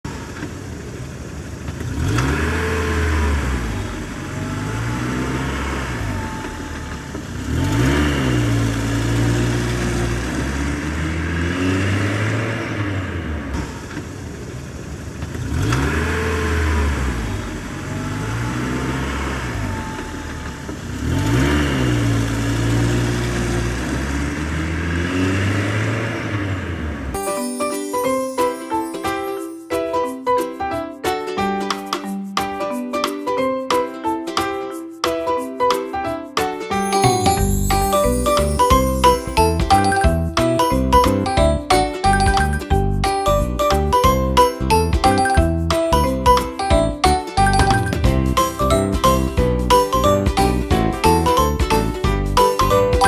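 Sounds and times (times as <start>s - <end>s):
engine revving with chug: 1.6s - 27.2s.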